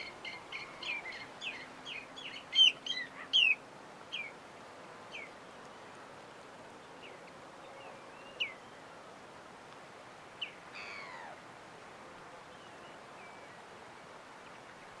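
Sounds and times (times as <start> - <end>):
birds chirping: 0.0 - 4.3
steady soft hiss: 0.0 - 15.0.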